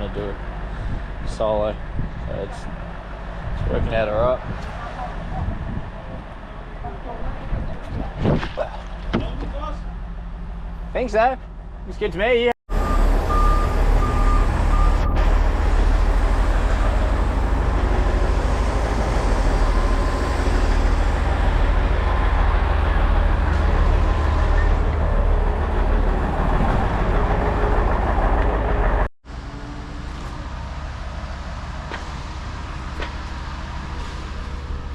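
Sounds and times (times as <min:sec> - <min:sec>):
diesel engine deep rumble: 0:00.0 - 0:34.9
quieter engine rumble: 0:00.0 - 0:34.9.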